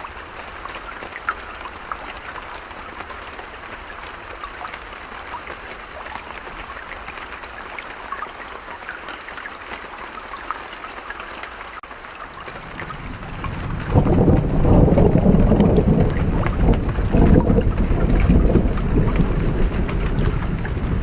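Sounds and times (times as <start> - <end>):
steady rain: 0.0 - 21.0
raindrop ticks: 11.8 - 21.0.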